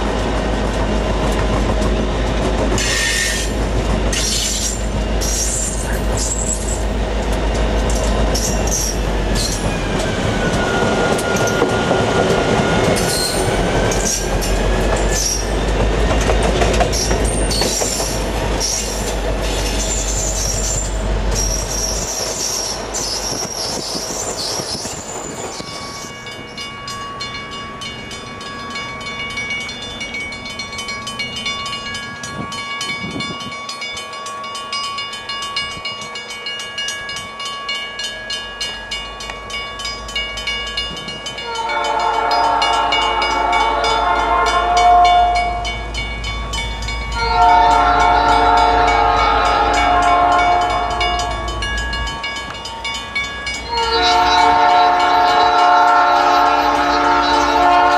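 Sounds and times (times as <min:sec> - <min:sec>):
train wheel clicks: 0:00.3 - 0:26.1
locomotive air horn blasts: 0:41.4 - 0:45.7, 0:47.2 - 0:51.5, 0:53.7 - 0:57.9.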